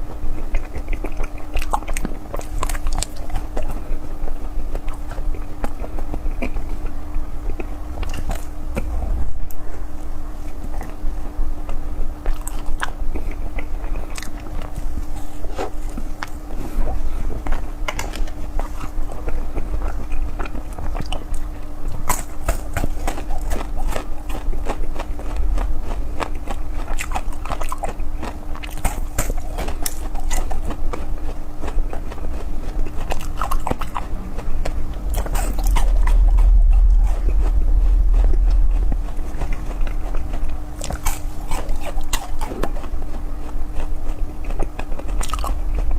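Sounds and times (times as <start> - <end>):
crisp chewing: 0.0 - 11.0, 11.7 - 45.9
faint low hum: 0.0 - 45.9
heavy low rumble: 7.5 - 11.2, 25.2 - 27.0, 33.2 - 42.2.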